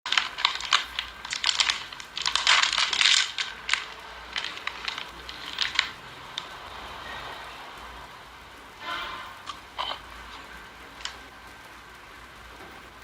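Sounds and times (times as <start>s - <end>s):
crinkling: 0.0s - 13.0s.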